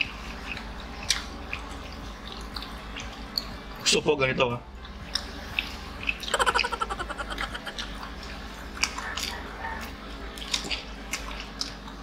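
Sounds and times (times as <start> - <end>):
people chewing nuggets: 0.0 - 3.7, 4.8 - 12.0.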